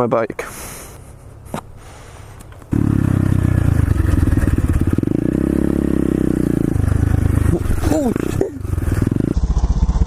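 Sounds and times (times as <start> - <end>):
pit bike engine running: 2.7 - 10.0.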